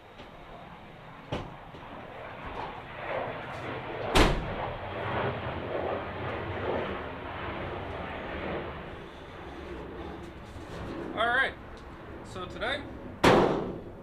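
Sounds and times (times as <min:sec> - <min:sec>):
loud door slam: 0:04.1 - 0:04.6, 0:13.2 - 0:13.8.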